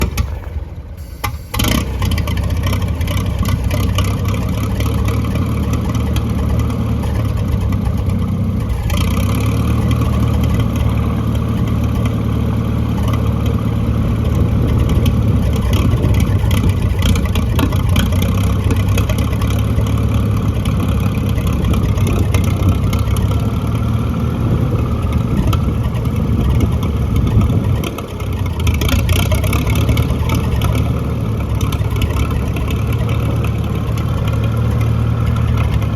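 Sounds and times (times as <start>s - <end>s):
tractor engine running: 0.0s - 35.9s.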